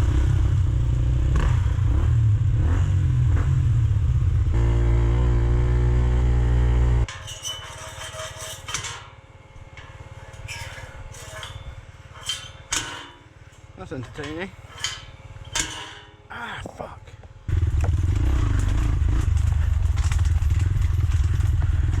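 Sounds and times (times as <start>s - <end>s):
dirt bike engine running: 0.0s - 7.1s, 16.6s - 22.0s
metallic clinks and clatters: 19.2s - 22.0s.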